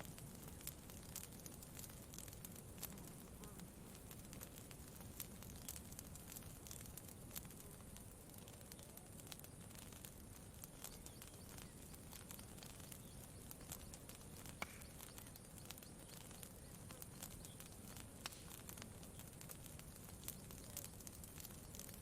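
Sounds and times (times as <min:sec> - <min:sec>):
campfire crackling: 0:00.0 - 0:22.0
low steady hiss: 0:00.0 - 0:22.0.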